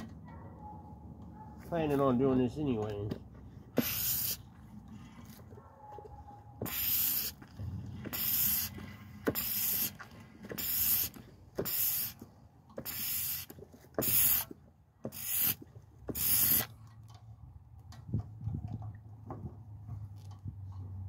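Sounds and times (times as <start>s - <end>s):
hand pump suction hissing: 3.7s - 4.5s, 6.6s - 16.8s.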